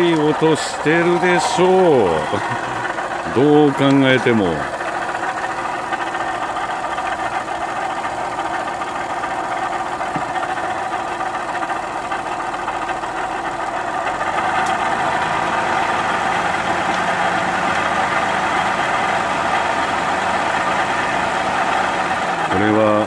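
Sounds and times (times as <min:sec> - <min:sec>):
abnormal noise from engine bay: 0:00.0 - 0:23.0
car engine idling: 0:00.0 - 0:23.0.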